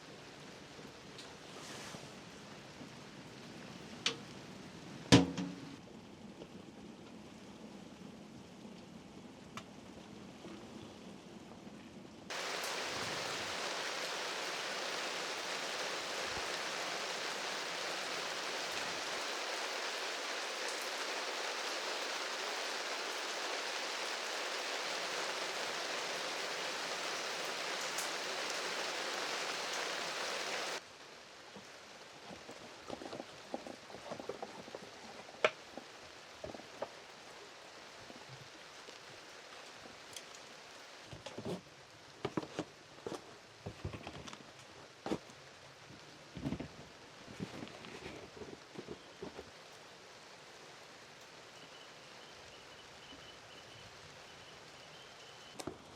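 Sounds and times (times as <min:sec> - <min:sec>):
heavy rain falling: 0:12.3 - 0:42.2.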